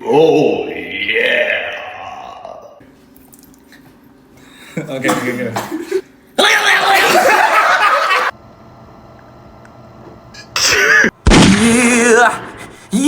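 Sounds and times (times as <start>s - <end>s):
person warbling cry: 0.0s - 2.8s, 6.4s - 7.3s, 10.6s - 13.0s.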